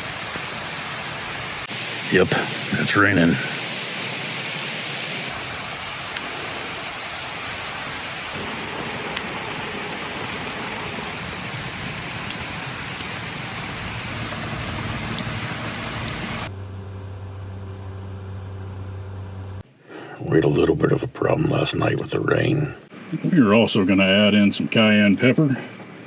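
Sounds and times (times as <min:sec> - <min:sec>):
steady rain: 0:00.0 - 0:16.5.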